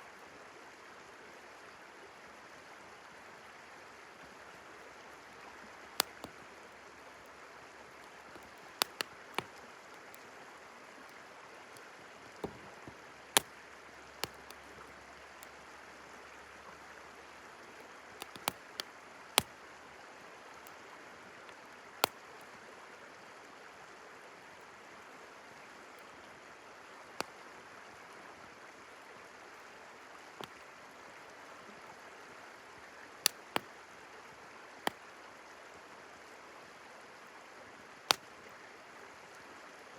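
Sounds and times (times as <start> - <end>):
river flowing: 0.0 - 39.9
campfire crackling and popping: 5.9 - 6.6, 8.0 - 10.2, 11.8 - 15.6, 18.2 - 19.6, 30.4 - 30.6.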